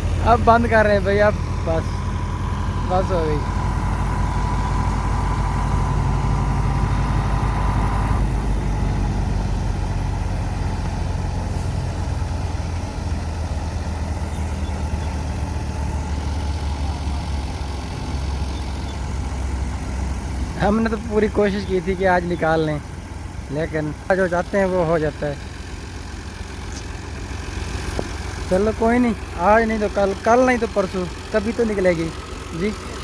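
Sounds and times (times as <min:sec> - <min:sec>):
diesel tractor engine rumbling: 0:00.0 - 0:33.0.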